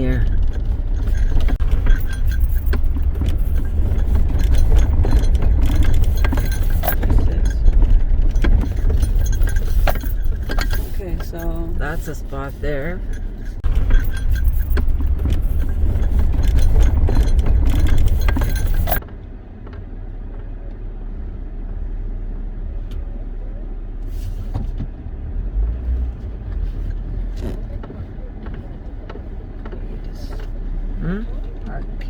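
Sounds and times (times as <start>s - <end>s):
clattering rattles: 0.0s - 19.0s
car interior rumble: 0.0s - 32.0s.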